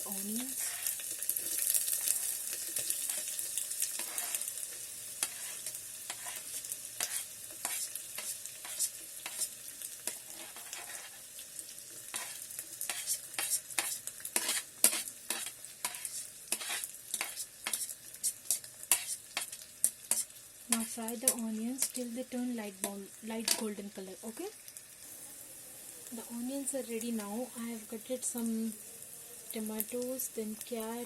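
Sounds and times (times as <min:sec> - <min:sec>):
onions sizzling in oil: 0:00.0 - 0:31.0
spoon scraping pot: 0:00.3 - 0:01.0, 0:04.0 - 0:04.5, 0:05.2 - 0:11.3, 0:12.1 - 0:22.0.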